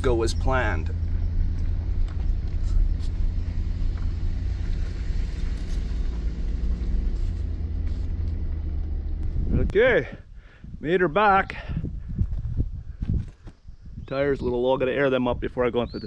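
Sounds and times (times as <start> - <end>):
road noise: 0.0 - 9.7
vehicle engine rumble: 0.0 - 9.8.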